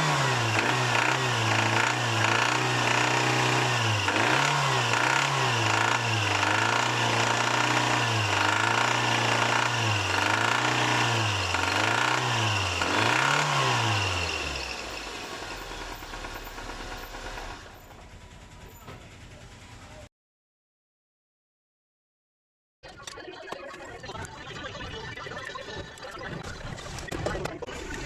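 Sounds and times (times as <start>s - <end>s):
car engine revving: 0.0s - 17.8s.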